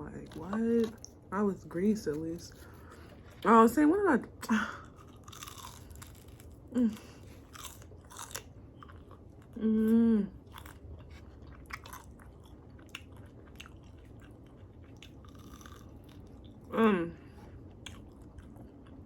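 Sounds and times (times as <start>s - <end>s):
crunching chicken wings: 4.9s - 9.3s, 10.5s - 16.6s
person humming: 9.6s - 10.4s.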